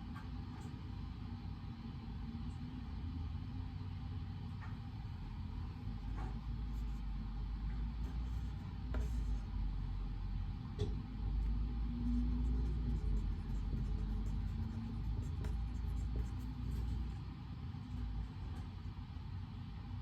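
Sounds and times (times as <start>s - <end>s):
steady low rumble: 0.5s - 20.0s
faint clicks and taps: 12.2s - 17.1s.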